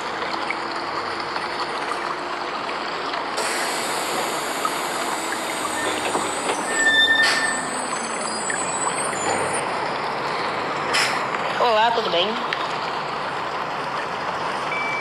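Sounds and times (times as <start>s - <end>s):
brake squeal: 3.4s - 11.2s
tyres hissing on wet road: 3.4s - 11.5s.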